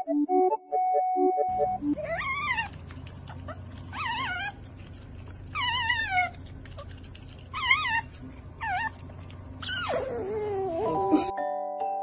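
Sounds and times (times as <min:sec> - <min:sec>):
otter squeaking: 0:01.9 - 0:11.1.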